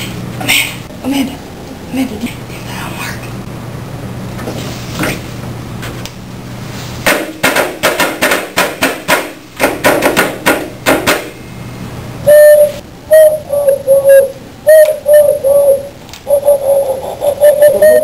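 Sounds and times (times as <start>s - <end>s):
person imitating bird call: 12.2s - 18.0s.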